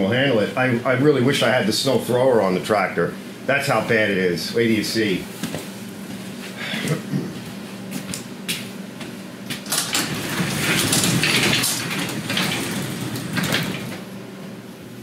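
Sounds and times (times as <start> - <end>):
garage door clattering open: 9.5 - 14.4.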